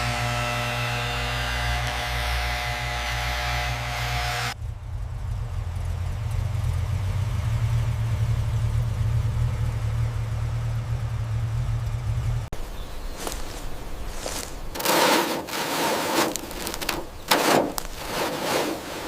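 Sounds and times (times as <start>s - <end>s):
car engine idling: 4.5s - 14.8s.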